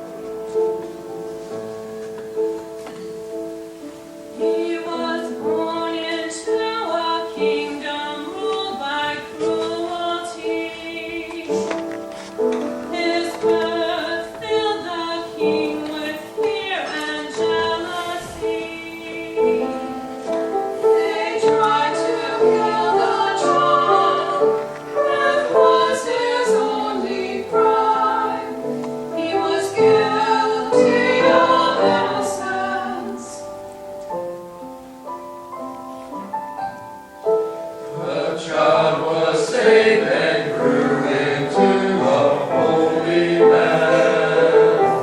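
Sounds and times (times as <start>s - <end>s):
choir singing with accompaniment: 4.3s - 33.7s, 36.8s - 45.0s.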